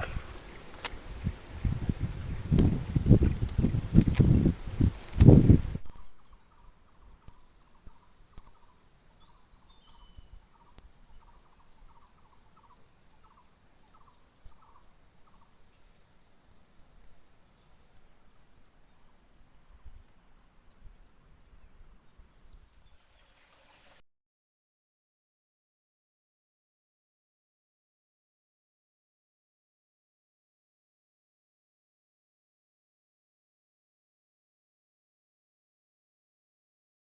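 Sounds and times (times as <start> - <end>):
high insect drone: 22.6 - 24.0.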